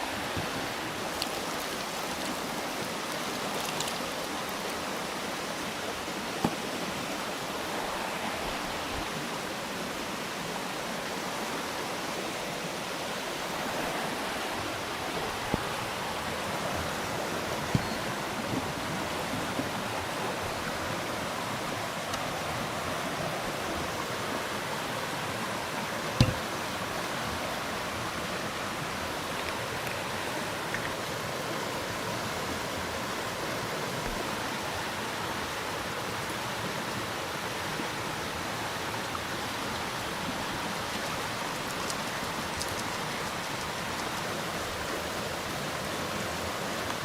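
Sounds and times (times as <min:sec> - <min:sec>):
running water rushing: 0:00.0 - 0:47.0
short sharp knocks: 0:26.2 - 0:26.5.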